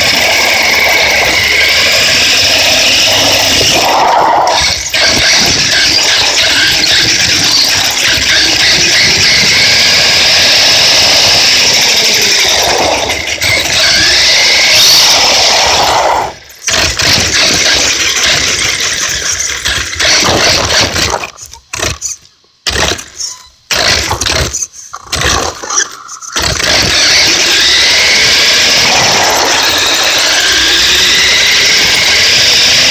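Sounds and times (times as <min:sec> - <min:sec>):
radio-controlled trucks driving: 0:00.0 - 0:32.9.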